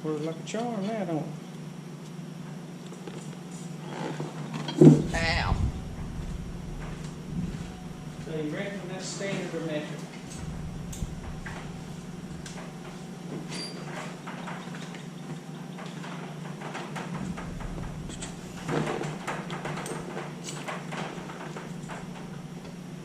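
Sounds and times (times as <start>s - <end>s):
steady low hum: 4.5s - 23.0s
metal clatter: 4.8s - 8.5s, 10.2s - 14.6s, 16.7s - 22.8s.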